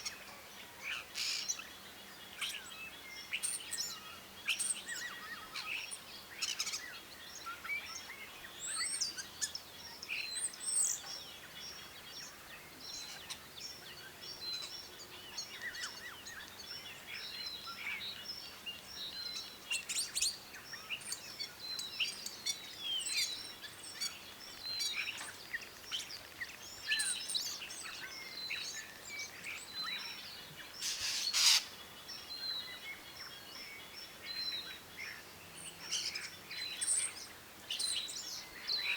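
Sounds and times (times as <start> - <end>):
birds chirping and calling: 19.1 - 38.9.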